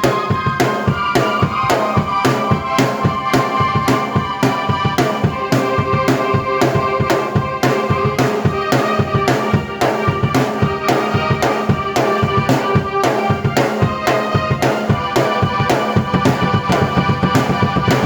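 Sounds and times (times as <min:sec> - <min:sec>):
drum beat: 0:14.5 - 0:18.0
sustained keyboard chords: 0:15.5 - 0:18.0.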